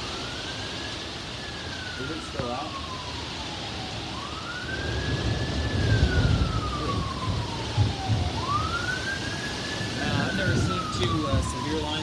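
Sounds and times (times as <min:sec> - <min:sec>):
siren wailing: 0:00.0 - 0:12.0
thunder rumbling: 0:04.8 - 0:12.0.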